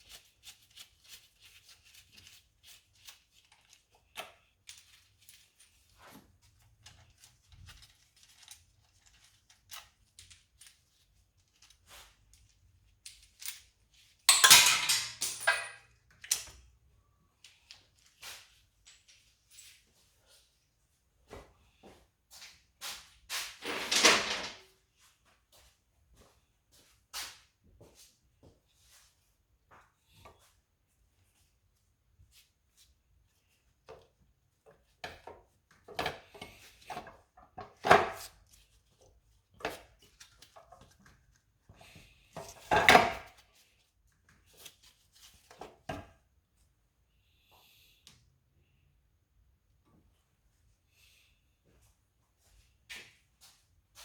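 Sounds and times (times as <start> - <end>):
hand tools clanking and knocking: 14.3 - 16.5.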